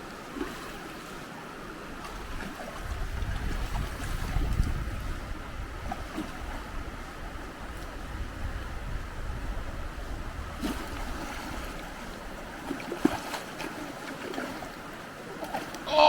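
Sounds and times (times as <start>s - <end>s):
river flowing: 0.0s - 4.1s, 5.1s - 16.0s
wind rumbling on microphone: 1.9s - 12.7s.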